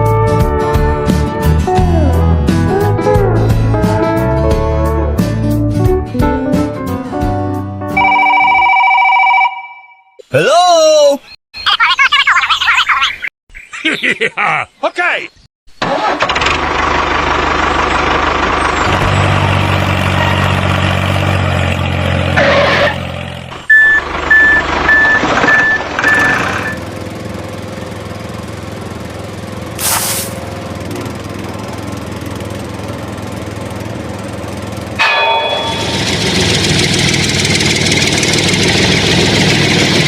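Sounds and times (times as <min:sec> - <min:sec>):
heavy vehicle engine running: 0:15.8 - 0:40.0
reversing alarm beeping: 0:23.7 - 0:26.8
air brakes hissing: 0:29.8 - 0:30.4.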